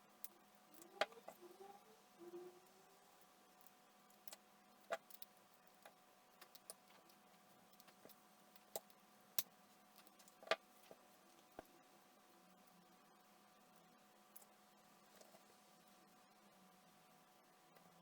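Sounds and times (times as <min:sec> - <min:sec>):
faint steady hum: 0:00.0 - 0:18.0
small clicks and taps: 0:00.2 - 0:01.5, 0:03.6 - 0:11.7.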